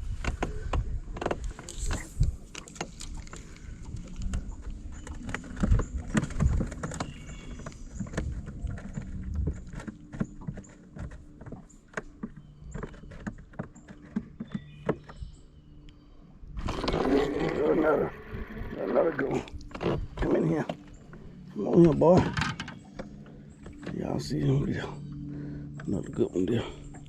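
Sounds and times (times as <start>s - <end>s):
wind rumbling on microphone: 0.0s - 10.7s, 16.4s - 23.2s
knocks and clicks on boat: 0.0s - 27.0s.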